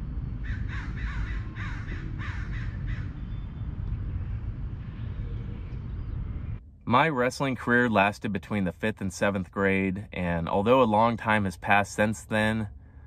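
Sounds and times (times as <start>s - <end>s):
steady low rumble: 0.0s - 13.0s
bird cawing: 0.4s - 3.7s.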